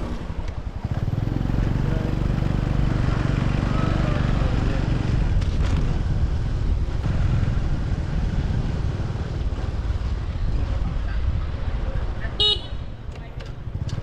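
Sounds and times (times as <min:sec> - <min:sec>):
street traffic: 0:00.0 - 0:14.0
motorbike engine: 0:00.2 - 0:14.0
wind buffeting microphone: 0:03.3 - 0:14.0.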